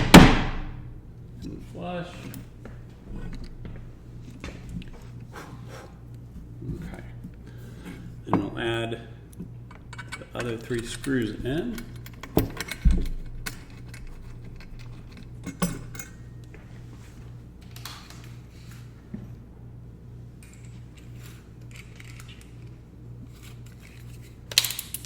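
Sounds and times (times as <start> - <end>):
steady low hum: 0.0 - 25.0
metal screws clinking: 9.9 - 16.2, 20.4 - 22.6.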